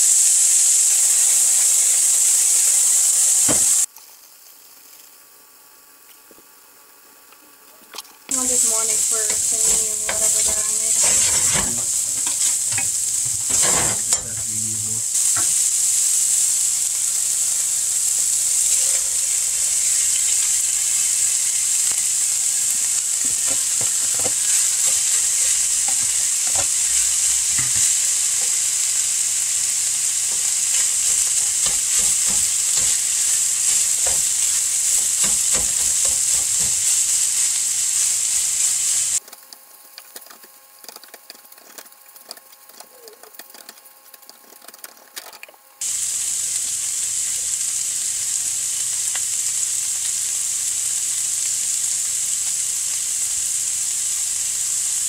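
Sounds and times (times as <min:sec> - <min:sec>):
food sizzling in a frying pan: 0:00.0 - 0:44.8, 0:45.8 - 0:55.0
wooden spatula scraping a pan: 0:08.6 - 0:14.4, 0:23.1 - 0:29.0, 0:29.8 - 0:37.5.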